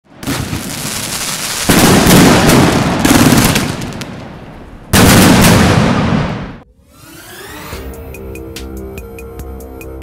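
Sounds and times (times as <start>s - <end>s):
fireworks bangs and crackling: 0.1s - 6.6s.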